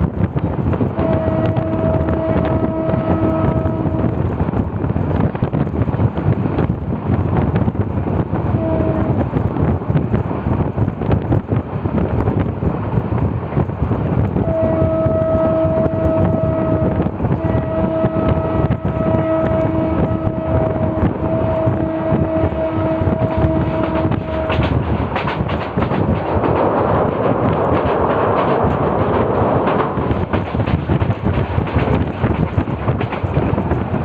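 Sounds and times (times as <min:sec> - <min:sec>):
train rumble and wind rush: 0:00.0 - 0:34.0
train horn blasts: 0:00.9 - 0:04.2, 0:08.5 - 0:09.2, 0:14.4 - 0:24.8.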